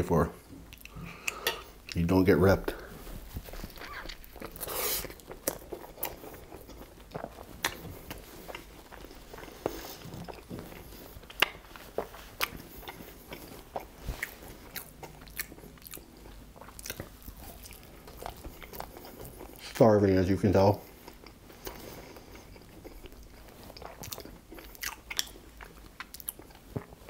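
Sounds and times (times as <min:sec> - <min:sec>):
person chewing with mouth clicks: 0:00.6 - 0:02.0, 0:03.5 - 0:19.6, 0:20.8 - 0:27.0.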